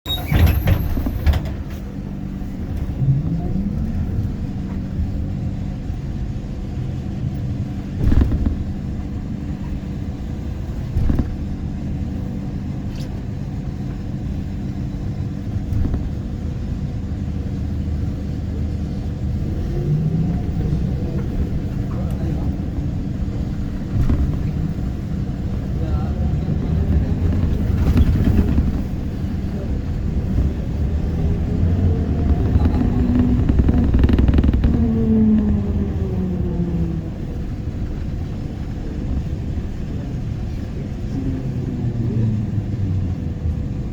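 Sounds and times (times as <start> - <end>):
bus low rumble and hum: 0.0 - 43.9
sharp thumps: 32.0 - 35.9.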